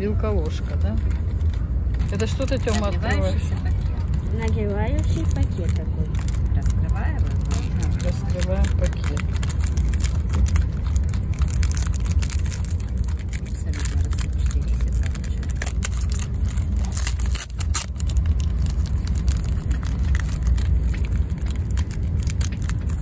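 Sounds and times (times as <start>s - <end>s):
moving train rumble: 0.0s - 23.0s
plastic food packet crinkling: 2.0s - 3.0s, 4.4s - 23.0s.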